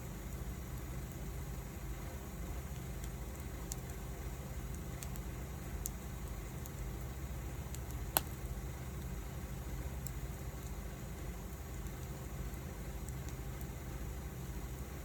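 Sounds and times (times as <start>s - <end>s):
fire crackling and popping: 2.5s - 14.0s.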